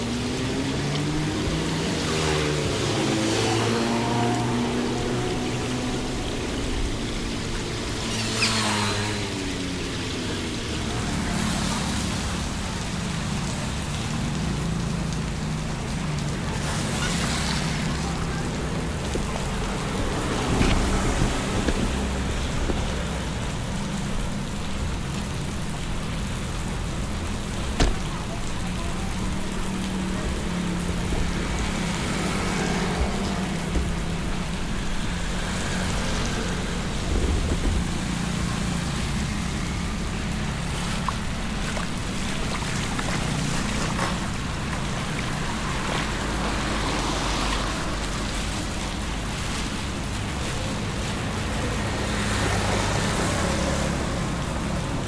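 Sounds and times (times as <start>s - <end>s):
low engine hum: 0.0s - 55.0s
rain and water noise: 0.0s - 55.0s
sharp knocks: 27.8s - 28.1s.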